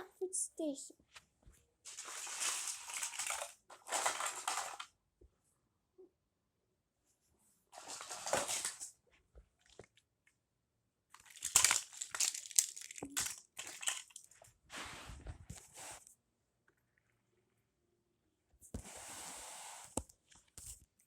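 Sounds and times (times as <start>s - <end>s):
rustling handling noise: 1.0s - 4.9s, 7.7s - 9.8s.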